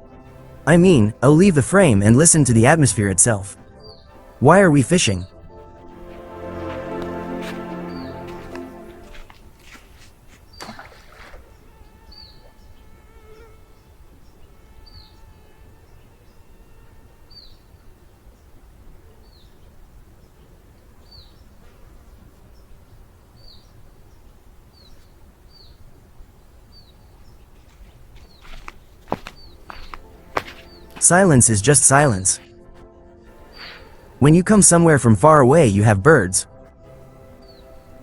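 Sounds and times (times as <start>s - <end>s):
bird chirping: 0.0s - 9.5s, 10.2s - 32.6s, 33.2s - 35.0s, 35.6s - 38.0s
mosquito whining: 10.7s - 18.3s, 33.3s - 34.2s.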